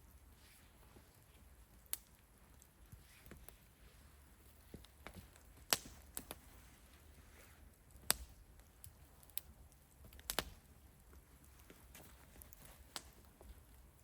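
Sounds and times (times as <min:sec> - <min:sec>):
light ticks: 0:01.1 - 0:03.6, 0:07.9 - 0:14.0.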